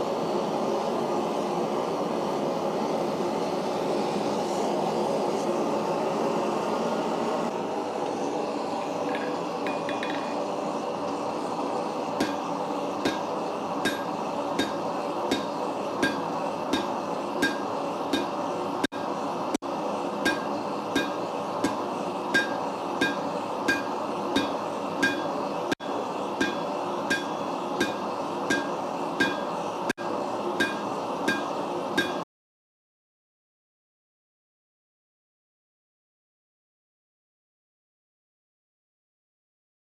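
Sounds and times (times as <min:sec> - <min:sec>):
gas forge burner roaring: 0:00.0 - 0:32.2
hammer striking steel on anvil: 0:09.1 - 0:10.4, 0:12.2 - 0:19.2, 0:20.2 - 0:32.2.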